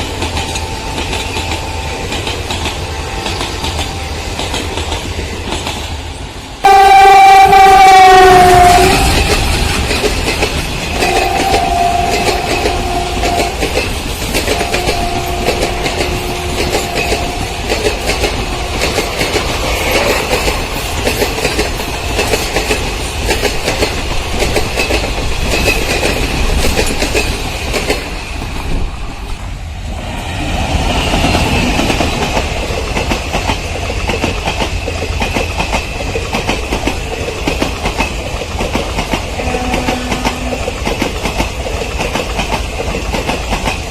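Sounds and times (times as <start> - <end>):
train wheels clicking over rails: 0.0 - 6.8, 7.5 - 43.9
train horn blasts: 6.6 - 9.2, 10.9 - 13.7, 14.5 - 20.2, 39.4 - 40.8.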